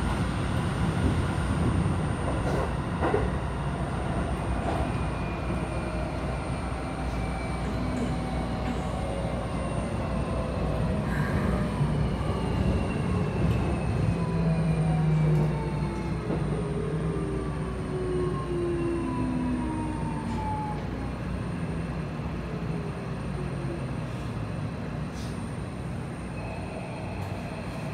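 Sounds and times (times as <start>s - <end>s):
train wheels on rail: 0.0s - 27.9s.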